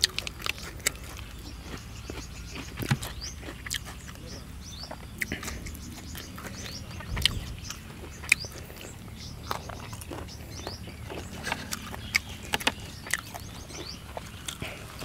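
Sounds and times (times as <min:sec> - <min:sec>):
chewing crispy food: 0:00.0 - 0:15.0.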